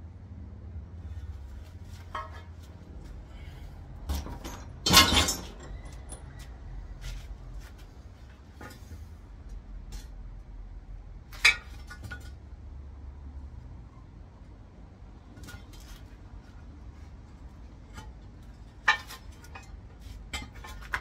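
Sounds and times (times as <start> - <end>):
metal parts clinking and knocking: 4.1 - 6.3.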